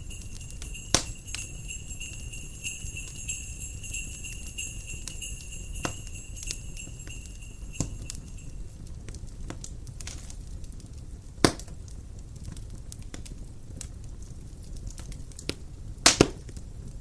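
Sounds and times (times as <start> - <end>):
sleigh bells shaking: 0.0 - 8.8
fire crackling and popping: 0.0 - 17.0.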